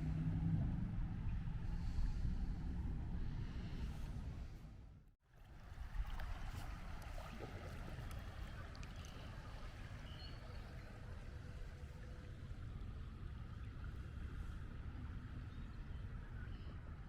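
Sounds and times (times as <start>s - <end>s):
wind rumble on microphone: 0.0s - 17.0s
water lapping and splashing: 5.2s - 17.0s.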